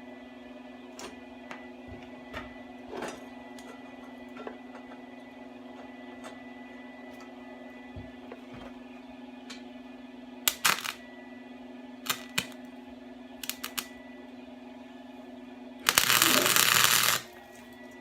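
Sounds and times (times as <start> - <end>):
electrical hum: 0.0 - 18.0
faint high whine: 10.5 - 18.0.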